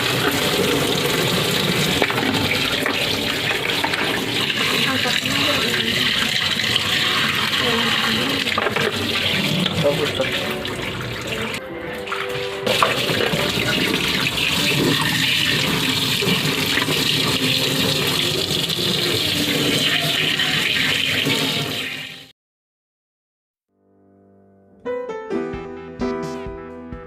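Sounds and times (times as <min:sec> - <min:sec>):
water splashing in washing machine: 0:00.0 - 0:22.3.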